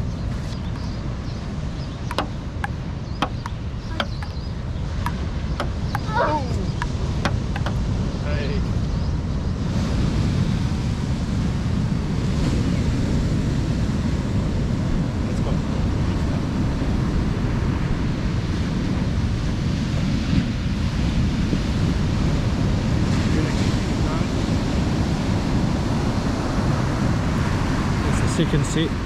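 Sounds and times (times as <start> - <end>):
strong wind on microphone: 0.0 - 29.0
breaking surf: 9.6 - 29.0.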